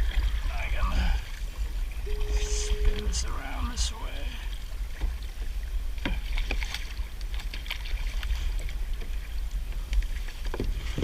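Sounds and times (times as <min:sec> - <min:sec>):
paddle splashes: 0:00.0 - 0:11.0
low rumble: 0:01.0 - 0:05.6.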